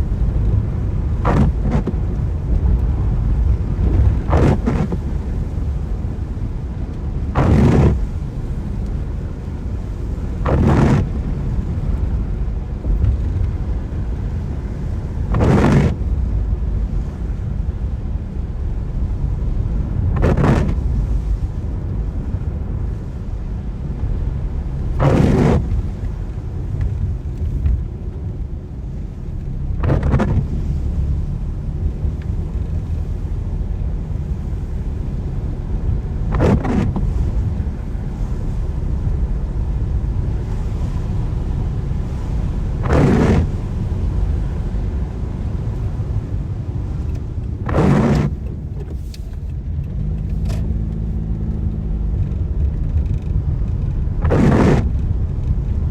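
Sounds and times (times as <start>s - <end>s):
tyre swish on wet road: 0.0s - 17.4s, 18.8s - 22.5s, 24.9s - 55.9s
car road and engine rumble: 0.0s - 55.9s.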